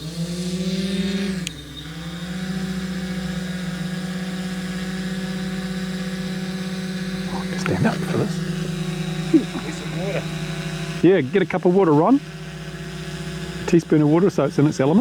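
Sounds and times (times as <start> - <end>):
drone propellers humming: 5.7 - 11.1, 13.6 - 15.0.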